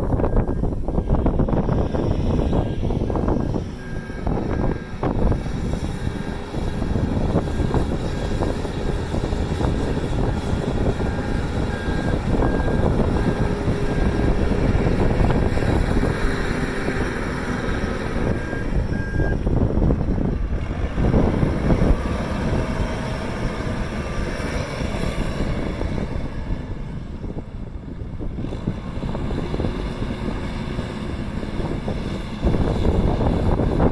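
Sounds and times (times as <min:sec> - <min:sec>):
telehandler engine running: 0:00.0 - 0:33.9
wind buffeting microphone: 0:00.0 - 0:33.9
reversing alarm beeping: 0:00.1 - 0:16.2, 0:18.2 - 0:19.5.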